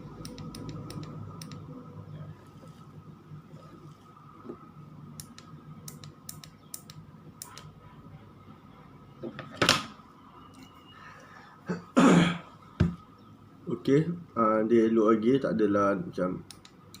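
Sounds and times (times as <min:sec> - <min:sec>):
light sharp clicks: 0:05.2 - 0:07.7.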